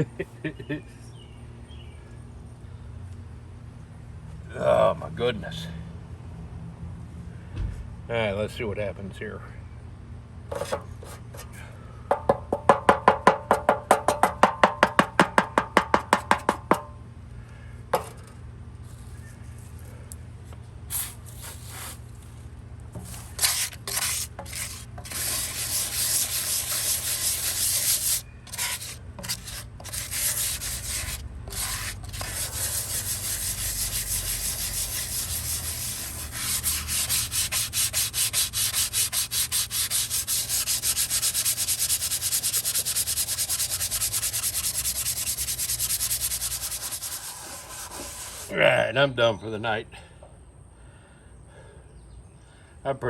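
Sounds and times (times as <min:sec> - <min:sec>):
scouring pad scrubbing sink: 0:23.4 - 0:48.5.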